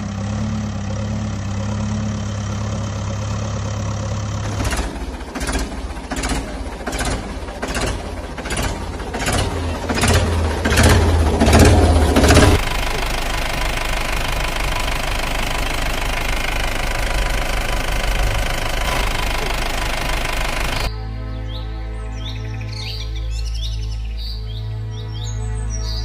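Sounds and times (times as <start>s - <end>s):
heavy vehicle engine running: 0.0s - 20.9s
chugging knocking beat: 0.1s - 20.9s.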